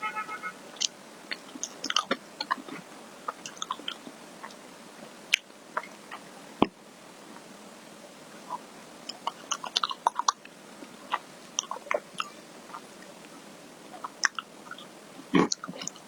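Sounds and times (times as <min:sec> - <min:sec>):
wet mouth clicks and chewing: 0:00.8 - 0:04.6, 0:08.5 - 0:12.9, 0:14.0 - 0:16.0.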